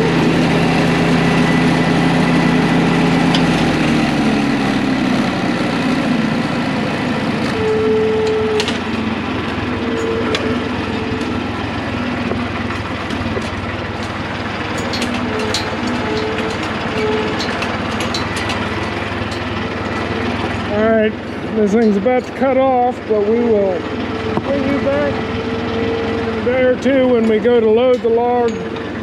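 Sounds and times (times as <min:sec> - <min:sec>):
tractor engine idling: 0:00.0 - 0:29.0
short squeaks: 0:07.1 - 0:20.2, 0:24.2 - 0:26.4.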